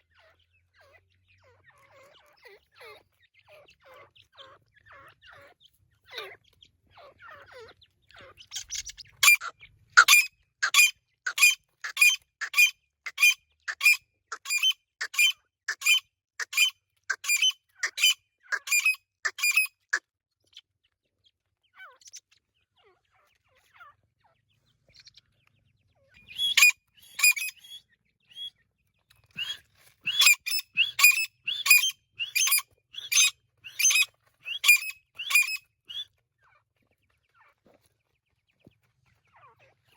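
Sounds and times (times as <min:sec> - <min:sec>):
partridge calling sharp notes: 0:08.6 - 0:19.7, 0:26.2 - 0:28.5, 0:29.3 - 0:36.1.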